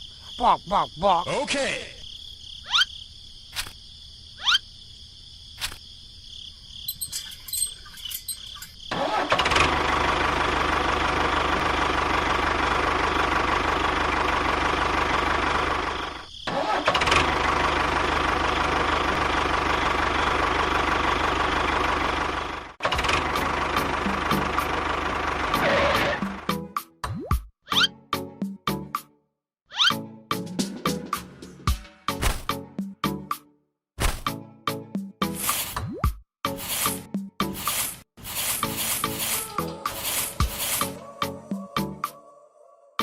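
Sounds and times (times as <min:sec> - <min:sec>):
engine running: 0:07.0 - 0:26.6, 0:36.6 - 0:37.0, 0:37.6 - 0:41.6.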